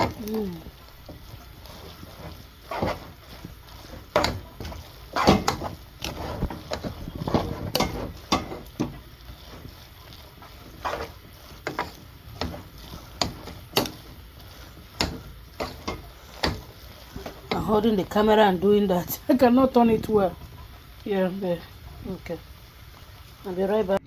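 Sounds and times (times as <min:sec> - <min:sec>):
spoon scraping cooking pot: 0:00.0 - 0:19.2.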